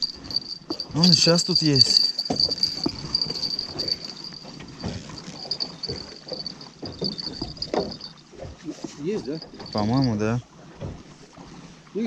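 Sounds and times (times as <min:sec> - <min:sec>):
insects chirring: 0:00.0 - 0:04.5, 0:05.1 - 0:08.2
knocks and clatter in boat: 0:00.0 - 0:12.0.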